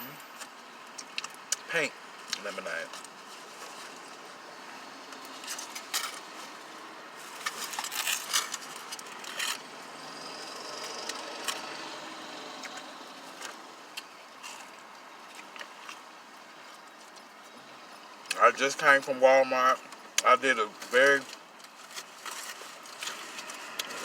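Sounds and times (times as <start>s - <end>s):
food packaging rustling: 5.2s - 9.7s, 20.8s - 24.0s.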